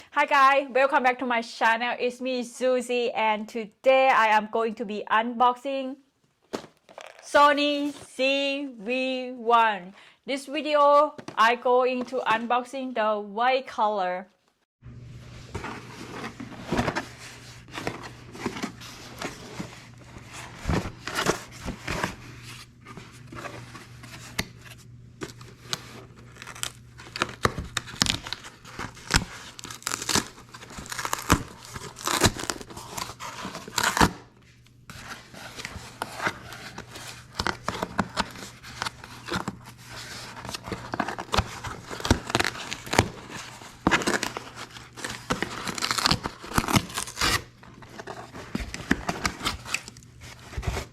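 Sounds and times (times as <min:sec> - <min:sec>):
packaging tearing and crinkling: 0:06.5 - 0:08.0, 0:25.3 - 0:34.2, 0:35.0 - 0:50.9.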